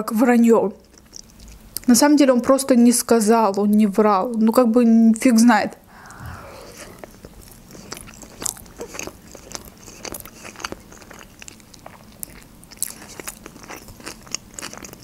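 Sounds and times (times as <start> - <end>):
chewing mouth clicks and smacks: 0.8 - 1.9, 7.8 - 15.0.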